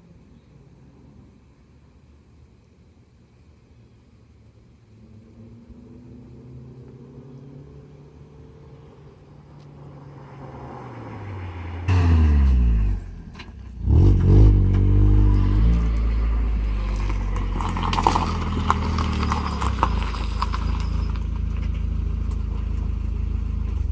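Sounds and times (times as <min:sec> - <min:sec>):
car engine driving by: 0:04.8 - 0:23.9.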